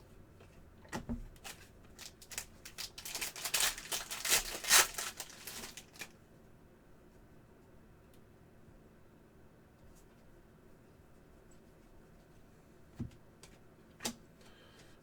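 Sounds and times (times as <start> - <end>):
cards crinkling and rustling: 1.4 - 6.2
foil wrapper tearing: 1.4 - 6.2.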